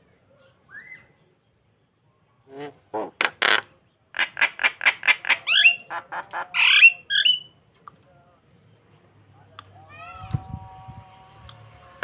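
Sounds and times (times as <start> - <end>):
starling harsh squawks: 4.2 - 7.5.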